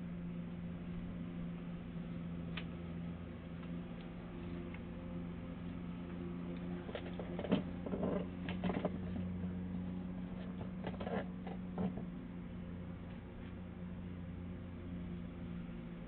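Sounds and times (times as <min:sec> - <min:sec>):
electrical hum: 0:00.0 - 0:16.0
light clicks and scrapes: 0:06.6 - 0:09.3, 0:10.2 - 0:12.1.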